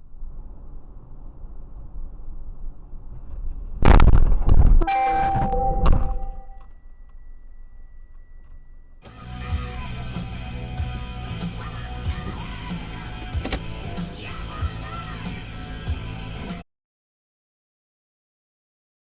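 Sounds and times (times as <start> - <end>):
music: 4.8 - 6.4, 9.0 - 16.6
steady blaring tone: 4.8 - 7.9.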